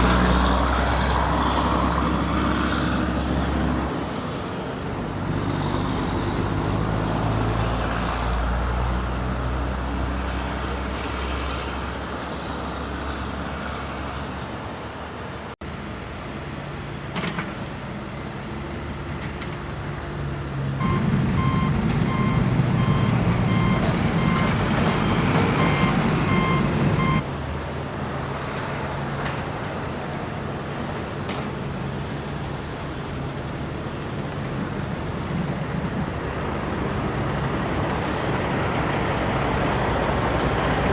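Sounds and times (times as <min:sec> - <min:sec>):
back-up alarm beeps: 0:20.8 - 0:27.2
heavy diesel machinery running: 0:20.8 - 0:27.2.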